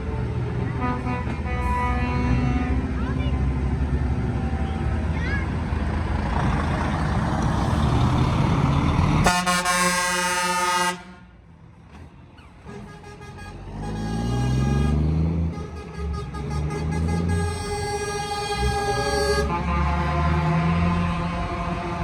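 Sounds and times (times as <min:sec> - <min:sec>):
truck engine pulling away: 0:00.0 - 0:10.9, 0:11.5 - 0:22.0
road and engine rumble: 0:00.0 - 0:22.0
truck air horn blast: 0:00.8 - 0:03.0, 0:09.2 - 0:11.4, 0:12.7 - 0:22.0.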